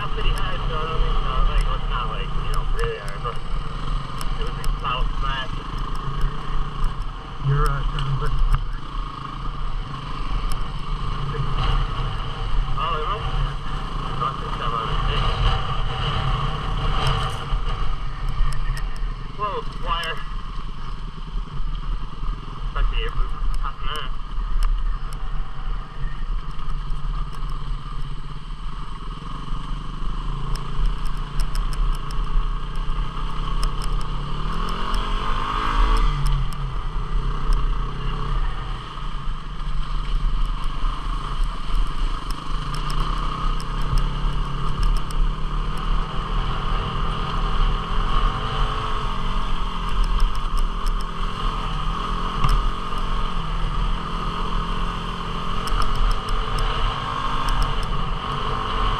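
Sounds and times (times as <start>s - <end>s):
motorcycle engine revving: 0.0s - 58.9s
small clicks and rattles: 30.5s - 35.0s, 40.0s - 45.9s.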